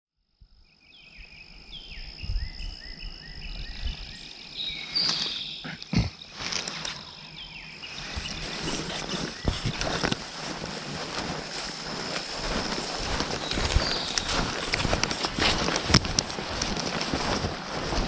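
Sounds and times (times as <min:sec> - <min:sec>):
high insect drone: 0:00.3 - 0:18.0
songbird singing: 0:00.4 - 0:18.0
knocks and rustles: 0:08.1 - 0:18.0.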